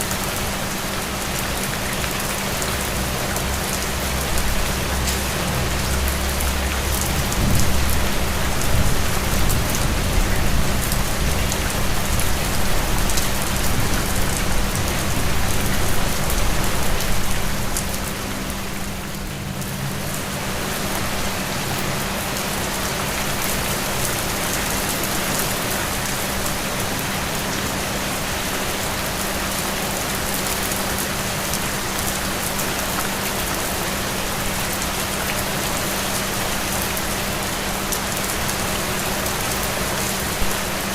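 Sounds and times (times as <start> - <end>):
heavy rain falling: 0.0 - 40.9
low rumble: 4.4 - 23.4.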